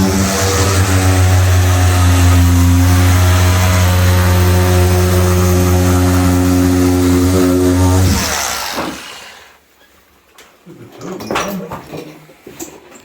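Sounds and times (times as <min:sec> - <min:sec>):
power tool cutting plasterboard: 0:00.0 - 0:09.6.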